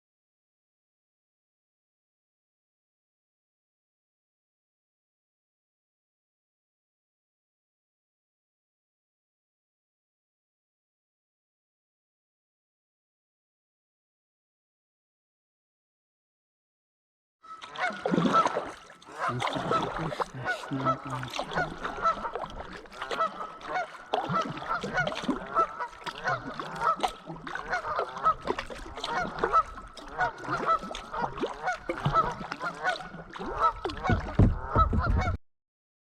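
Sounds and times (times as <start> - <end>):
geese honking: 17.4 - 35.4
low thumps: 34.1 - 35.4.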